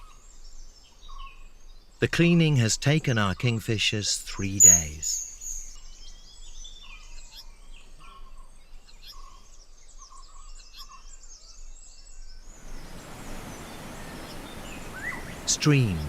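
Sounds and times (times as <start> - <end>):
forest birds chirping: 0.0 - 16.0
stream water rushing: 12.5 - 16.0.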